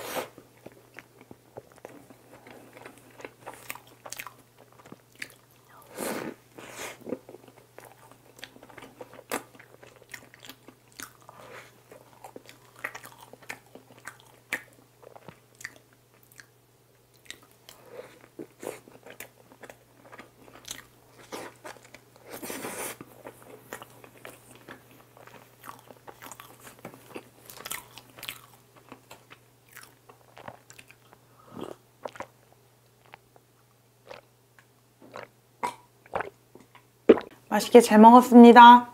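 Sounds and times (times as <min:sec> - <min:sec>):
faint steady hum: 0:00.0 - 0:38.9
biting and chewing: 0:17.2 - 0:32.4.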